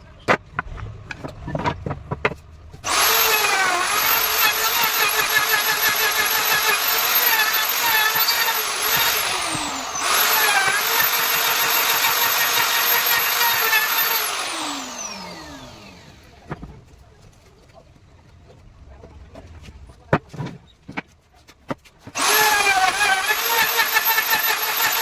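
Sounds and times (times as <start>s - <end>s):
power tool motor whine: 2.8s - 16.4s, 22.2s - 25.0s.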